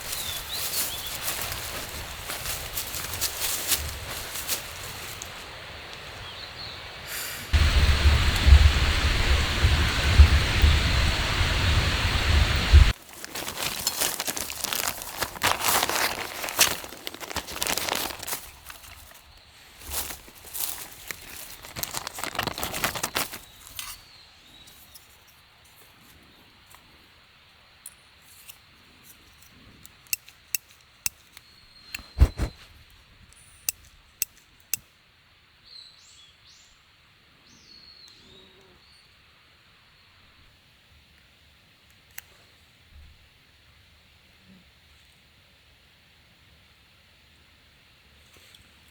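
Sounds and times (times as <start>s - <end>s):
material crinkling and rustling: 0.0s - 4.9s, 12.9s - 24.0s.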